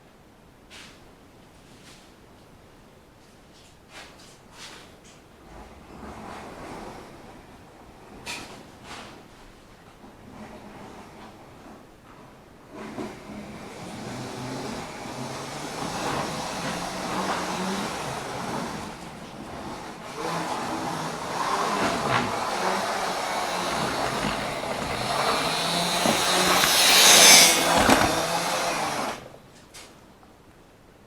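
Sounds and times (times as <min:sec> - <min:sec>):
model train running on track: 0:13.0 - 0:29.2.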